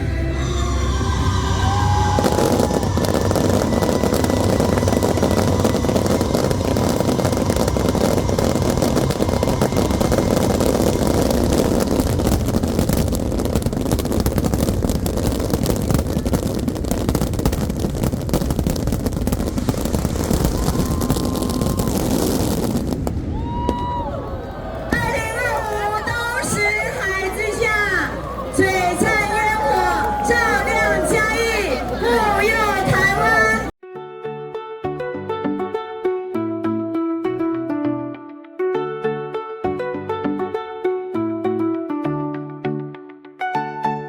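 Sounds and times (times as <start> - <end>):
aerial fireworks barrage: 1.0 - 33.8.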